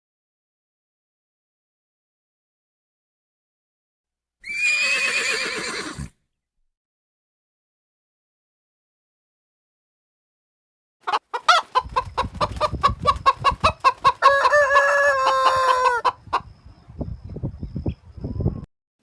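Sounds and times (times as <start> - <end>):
chickens clucking: 11.0 - 16.5
rooster crowing: 14.0 - 16.1.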